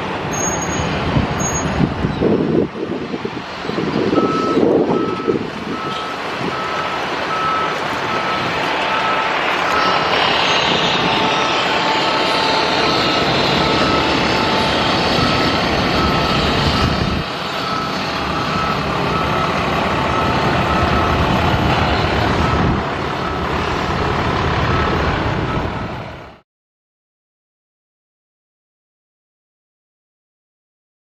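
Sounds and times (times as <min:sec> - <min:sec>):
heavy truck engine running: 0:00.0 - 0:26.4
back-up alarm beeping: 0:04.1 - 0:21.8.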